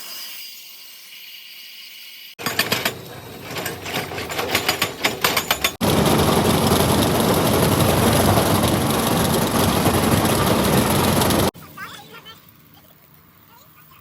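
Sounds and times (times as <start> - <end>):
crusher machinery knocking and clattering: 2.4 - 11.5
machinery running with deep rumble: 2.9 - 11.6.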